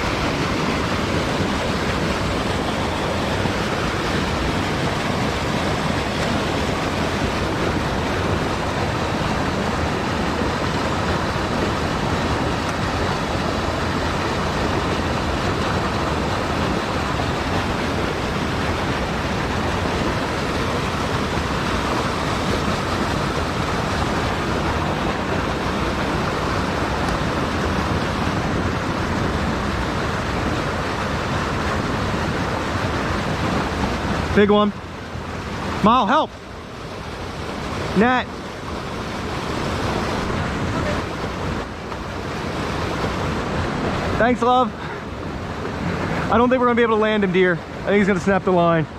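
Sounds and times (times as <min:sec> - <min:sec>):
mountain stream flowing: 0:00.0 - 0:48.9.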